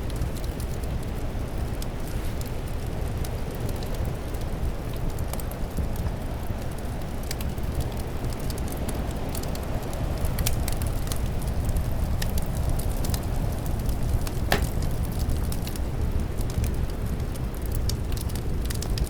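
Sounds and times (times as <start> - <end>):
fire crackling and popping: 0.0 - 19.0.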